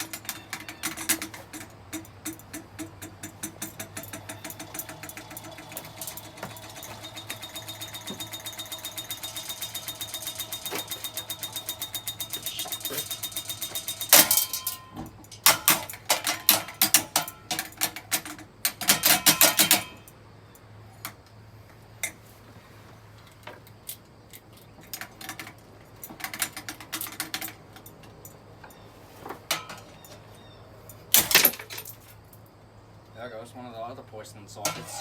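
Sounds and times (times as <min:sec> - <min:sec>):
ceiling fan being smashed: 0:00.0 - 0:18.0, 0:31.2 - 0:32.0.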